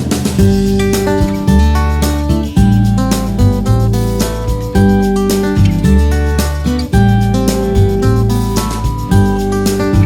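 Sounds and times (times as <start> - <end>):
steady bass line: 0.0 - 10.0
strummed acoustic guitar: 0.0 - 10.0.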